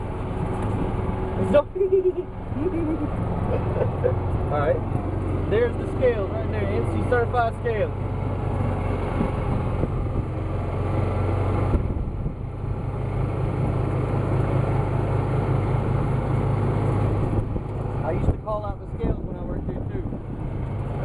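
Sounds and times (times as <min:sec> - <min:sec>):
golf cart motor hum: 0:00.0 - 0:21.0
wind noise: 0:08.4 - 0:14.1, 0:17.0 - 0:21.0.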